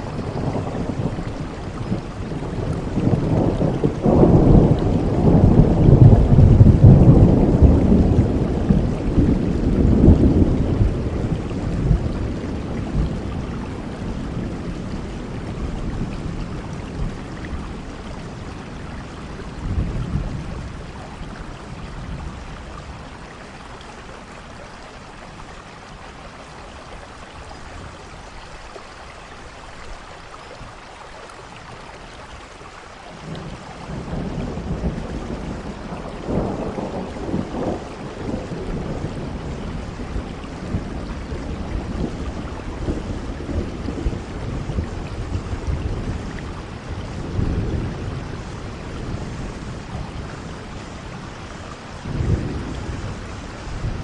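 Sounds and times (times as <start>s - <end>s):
rolling thunder: 0.0s - 23.2s, 33.2s - 54.0s
steady rain falling: 0.0s - 54.0s
sharp thunder cracks: 2.8s - 13.2s.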